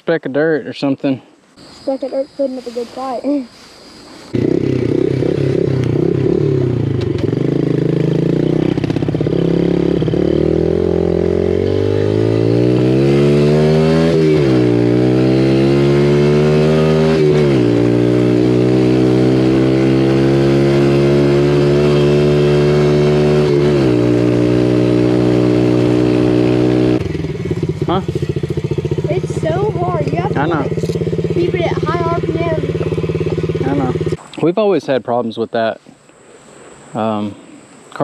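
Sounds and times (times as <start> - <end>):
dirt bike engine revving: 4.3 - 34.2.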